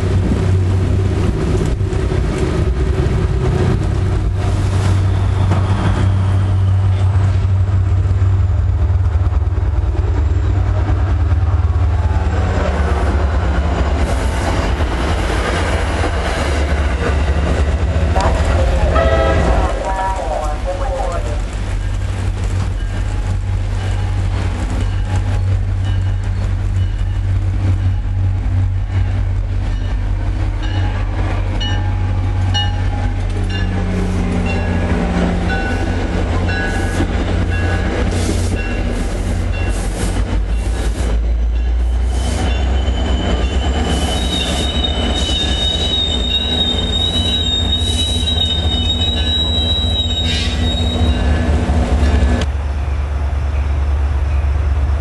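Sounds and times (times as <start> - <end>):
train rumbling past: 0.0 - 55.0
high-pitched wheel squeal: 42.5 - 51.4.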